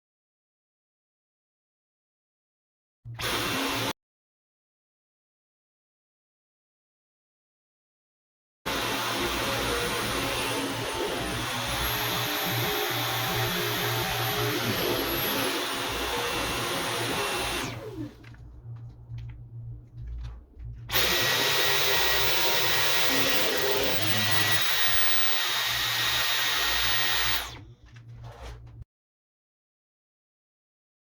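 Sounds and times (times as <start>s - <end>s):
cordless vacuum whining: 8.7s - 18.4s, 20.9s - 28.7s.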